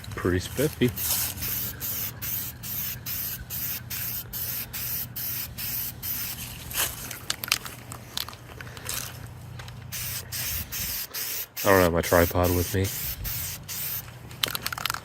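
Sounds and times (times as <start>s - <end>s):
spray paint can hissing: 0.9s - 6.4s, 9.9s - 14.1s.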